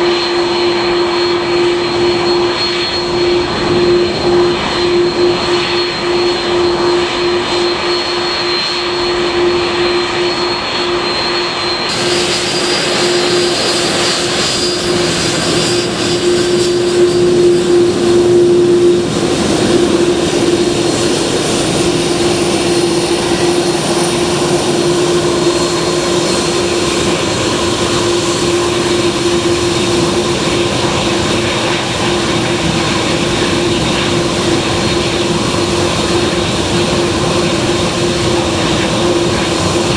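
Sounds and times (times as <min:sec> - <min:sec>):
aircraft engines droning: 0:00.0 - 0:39.9.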